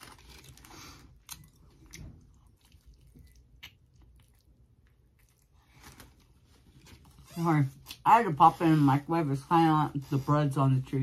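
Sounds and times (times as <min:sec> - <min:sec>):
faint biting and chewing: 0:00.0 - 0:08.1.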